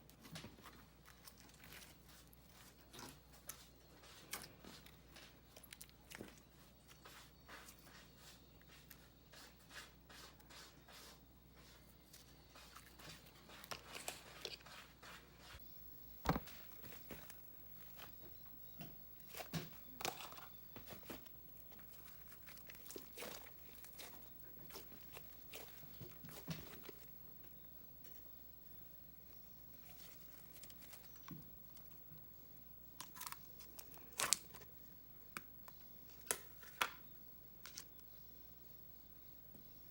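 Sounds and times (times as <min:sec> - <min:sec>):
hands squishing slime: 0:19.2 - 0:27.1.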